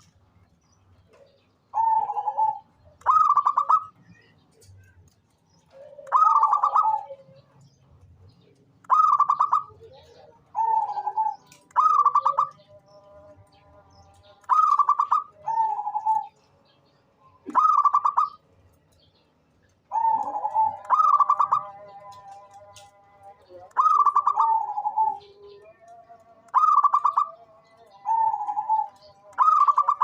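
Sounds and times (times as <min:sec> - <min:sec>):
dove cooing: 0:01.2 - 0:04.3, 0:05.6 - 0:07.6, 0:08.8 - 0:13.2, 0:14.4 - 0:16.4, 0:17.4 - 0:18.4, 0:19.9 - 0:30.0.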